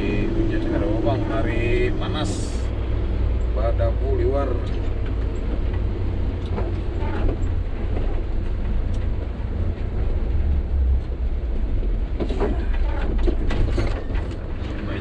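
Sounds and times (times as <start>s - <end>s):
diesel truck engine running: 0.0s - 13.6s
road noise: 0.0s - 15.0s
faint knocks and rattles: 11.0s - 15.0s.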